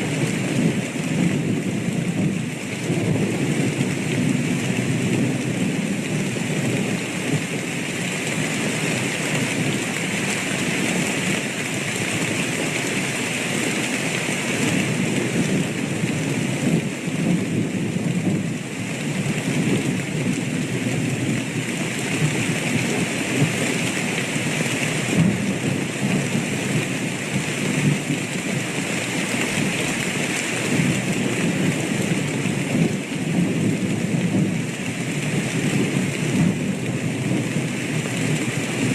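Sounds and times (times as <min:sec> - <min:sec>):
heavy rain: 0:00.0 - 0:38.9
thunder rumbling: 0:14.3 - 0:38.9.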